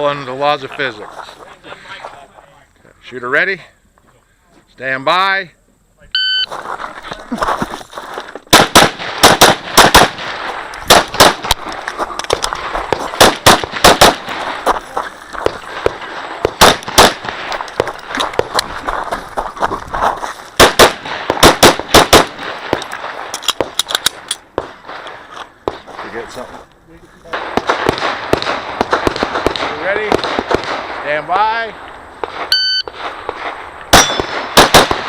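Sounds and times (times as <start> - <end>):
pistol shots: 8.5 - 11.6, 12.3 - 14.6, 15.7 - 17.9, 20.6 - 26.2, 27.4 - 31.0, 32.2 - 35.0.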